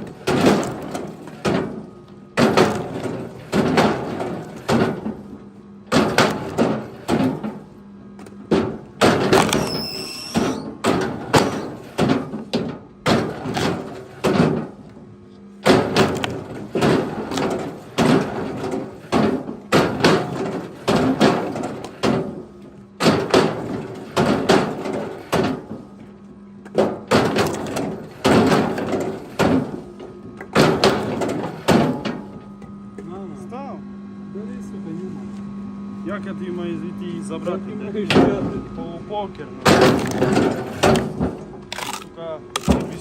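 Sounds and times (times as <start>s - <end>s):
steady low hum: 0.0s - 43.0s
heavy knocks and thuds: 8.5s - 9.6s, 15.6s - 22.4s, 26.7s - 29.8s.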